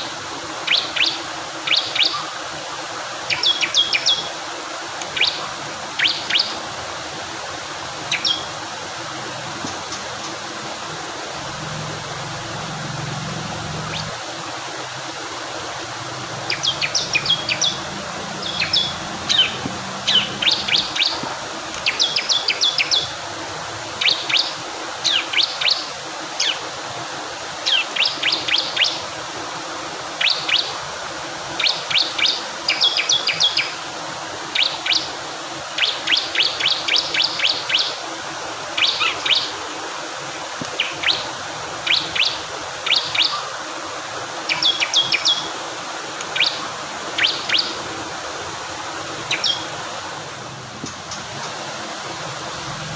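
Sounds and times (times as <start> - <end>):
flowing water rushing: 0.0 - 52.9
bird singing high chirps: 3.3 - 4.3, 5.1 - 5.4, 6.0 - 6.6, 8.1 - 8.5, 13.6 - 14.2, 16.4 - 21.2, 21.8 - 23.1, 40.8 - 43.4, 44.5 - 45.5, 46.3 - 46.6, 47.2 - 47.8, 49.2 - 49.7.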